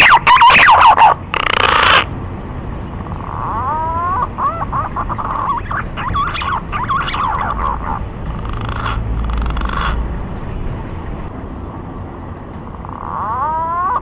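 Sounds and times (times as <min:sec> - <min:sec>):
pigeons warbling and whistling: 0:00.0 - 0:02.1, 0:03.1 - 0:10.0, 0:12.8 - 0:14.0.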